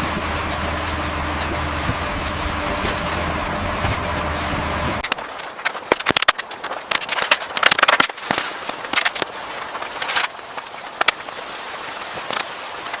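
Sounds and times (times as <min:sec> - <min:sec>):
sharp cracks and pops: 0:05.0 - 0:13.0.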